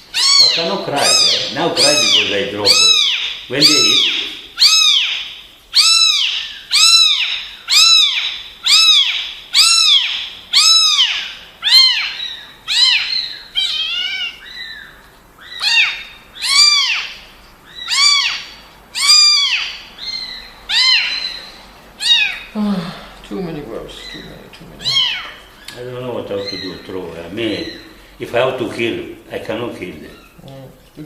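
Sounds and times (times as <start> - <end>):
kitten meowing: 0.1 - 14.8, 15.5 - 17.1, 17.8 - 21.4, 22.0 - 22.6, 24.0 - 25.4.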